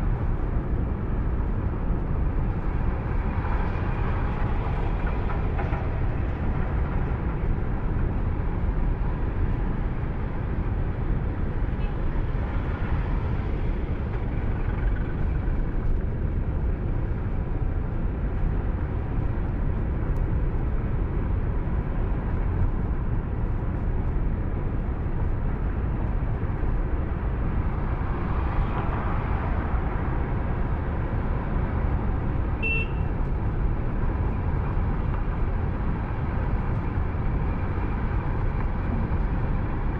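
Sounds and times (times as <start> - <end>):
car road and engine noise: 0.0 - 39.9
car horn toot: 32.6 - 33.1.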